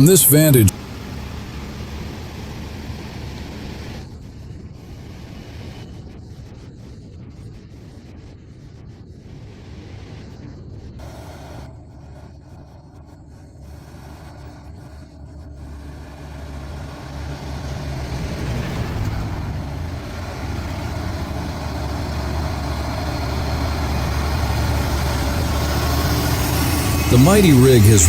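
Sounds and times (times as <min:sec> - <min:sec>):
road noise: 0:11.0 - 0:28.0
truck diesel engine: 0:11.0 - 0:28.0.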